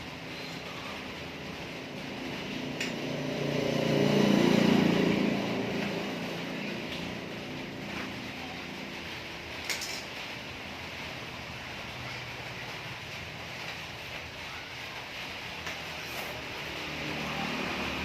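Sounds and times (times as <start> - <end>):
vehicle engine passing by: 0.6 - 9.0, 15.9 - 18.0.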